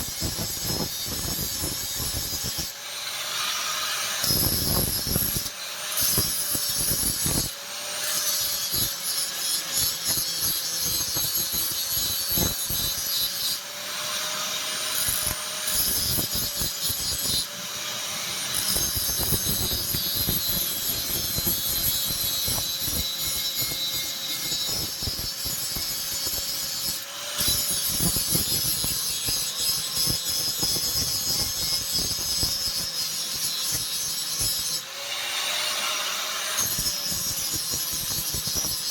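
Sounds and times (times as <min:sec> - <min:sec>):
grinder motor whine: 0:00.0 - 0:29.0
harsh grinding hiss on steel: 0:00.0 - 0:38.9.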